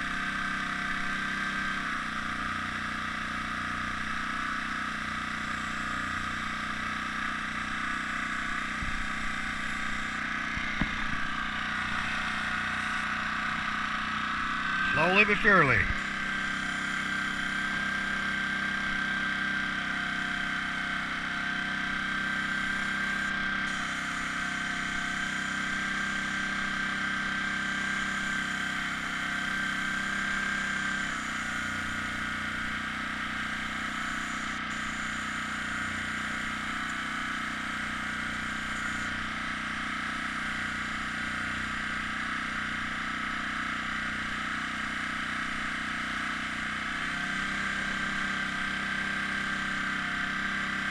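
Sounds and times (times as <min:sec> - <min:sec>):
air compressor motor hum: 0:02.0 - 0:50.9
thin high whine: 0:13.9 - 0:18.3.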